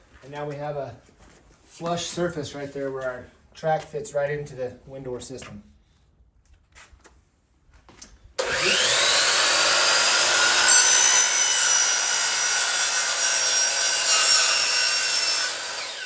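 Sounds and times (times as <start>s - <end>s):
miter saw cutting aluminum: 8.4s - 16.0s.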